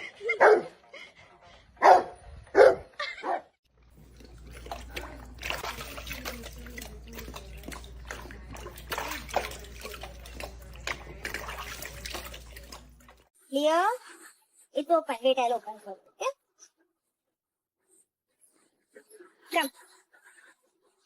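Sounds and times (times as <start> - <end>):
dog barking: 0.4 - 0.7, 1.8 - 3.5
water splashing and trickling: 3.7 - 13.3.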